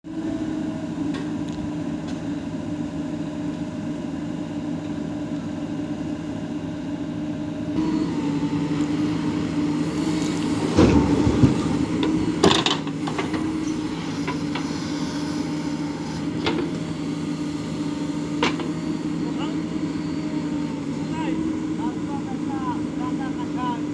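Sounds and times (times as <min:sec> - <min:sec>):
diesel engine running: 0:00.1 - 0:23.9
loud knocks and rattles: 0:10.5 - 0:13.6.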